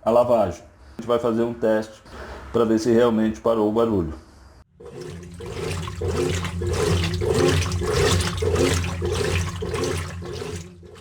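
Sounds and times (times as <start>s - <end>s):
washing machine motor hum: 4.7s - 11.0s
water churning: 4.7s - 11.0s.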